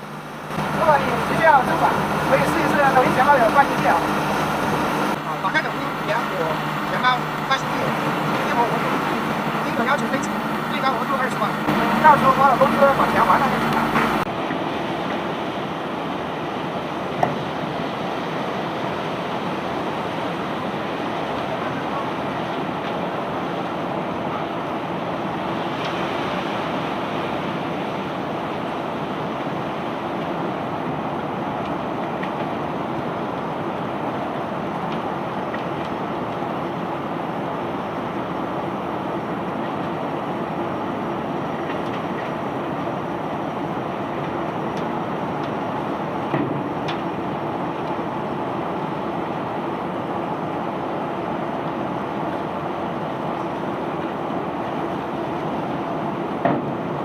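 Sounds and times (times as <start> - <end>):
unloading machinery running: 0.0 - 14.3.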